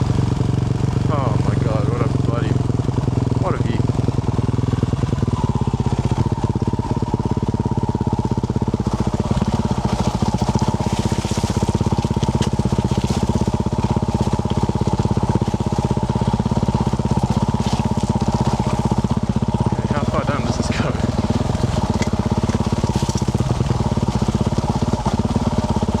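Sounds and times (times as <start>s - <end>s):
motorcycle engine running steadily: 0.0s - 26.0s.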